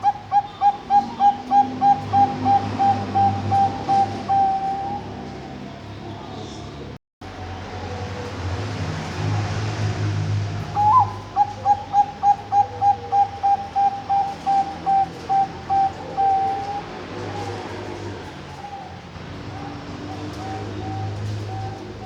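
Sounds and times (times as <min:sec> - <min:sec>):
dove cooing: 0:00.0 - 0:05.6, 0:10.6 - 0:22.0.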